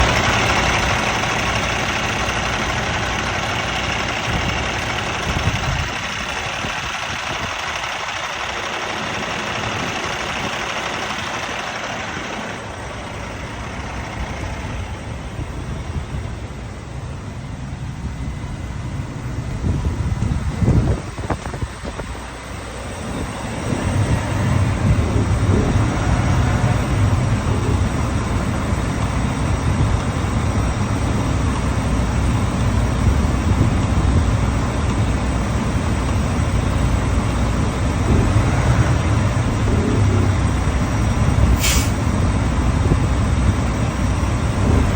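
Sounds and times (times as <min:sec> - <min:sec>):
truck diesel engine running: 0:00.0 - 0:44.9
brief hiss: 0:41.6 - 0:42.0.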